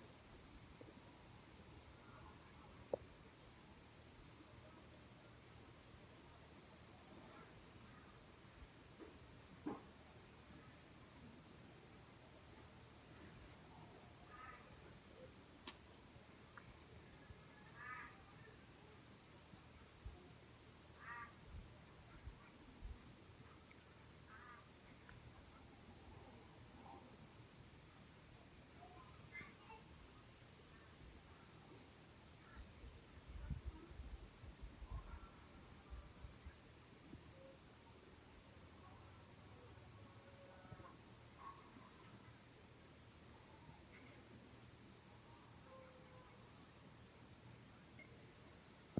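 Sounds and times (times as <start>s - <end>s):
insects trilling: 13.4s - 15.8s, 16.5s - 18.7s, 20.9s - 22.6s, 23.3s - 25.6s, 28.8s - 31.5s, 38.9s - 48.9s.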